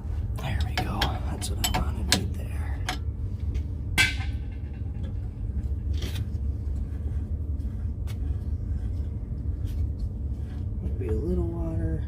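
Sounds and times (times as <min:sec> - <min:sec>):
steady low rumble: 0:00.0 - 0:12.0
metal clanking on metal: 0:00.5 - 0:03.1, 0:04.0 - 0:06.2.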